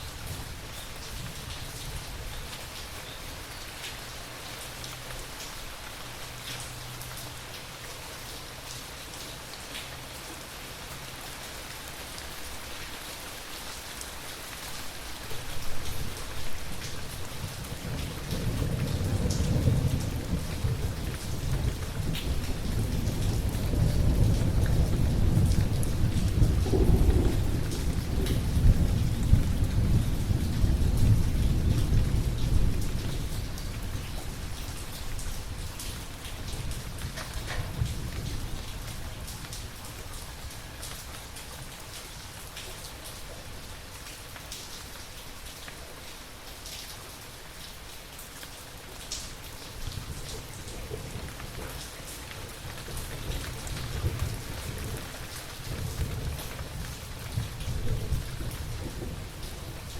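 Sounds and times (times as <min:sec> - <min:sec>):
steady rain: 0:00.0 - 0:59.9
low rumble of thunder: 0:15.4 - 0:40.6, 0:49.7 - 0:59.9.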